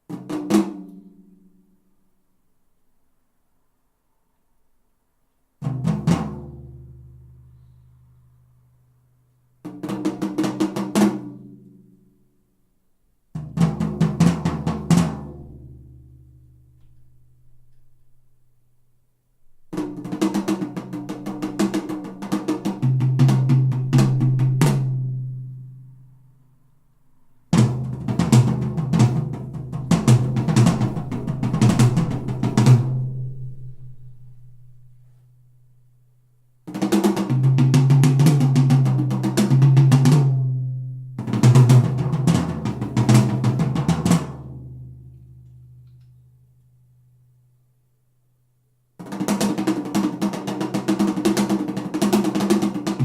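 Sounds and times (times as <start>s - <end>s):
drum kit music: 27.6s - 33.1s.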